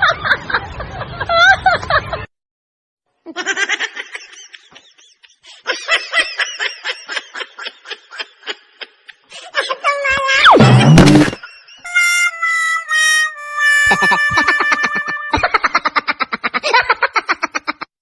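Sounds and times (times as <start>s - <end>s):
high-pitched snickering laughter: 13.8s - 17.9s.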